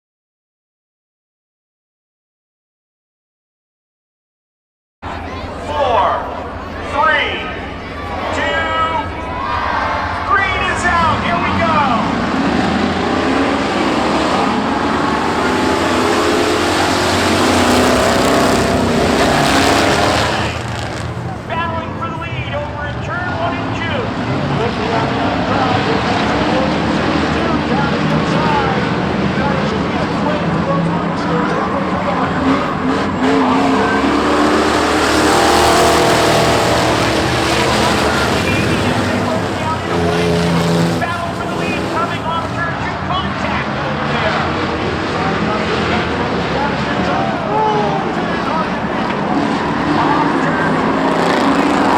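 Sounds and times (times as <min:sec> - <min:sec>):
truck engines running hard: 0:05.0 - 0:51.9
tire squeal: 0:05.1 - 0:21.6, 0:31.2 - 0:42.8.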